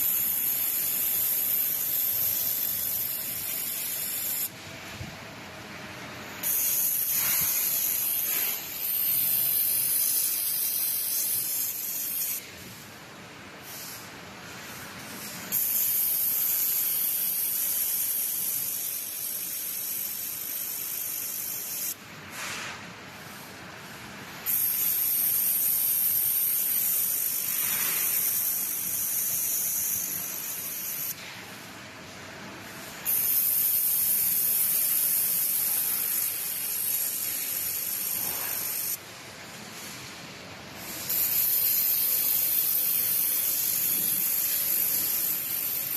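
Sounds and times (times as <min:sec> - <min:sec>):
welding gas hissing: 0:00.0 - 0:04.5, 0:06.3 - 0:12.6, 0:15.2 - 0:22.7, 0:24.4 - 0:31.2, 0:33.0 - 0:39.0, 0:40.8 - 0:45.9.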